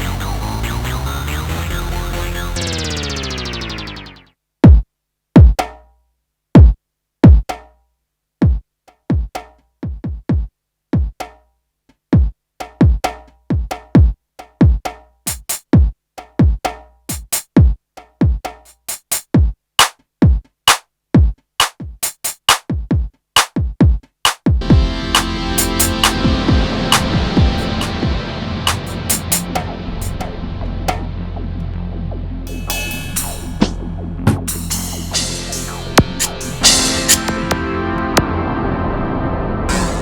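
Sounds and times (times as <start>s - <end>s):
sustained synthesizer sound: 0.0s - 4.3s, 24.6s - 40.0s
synth drum hits: 24.6s - 40.0s.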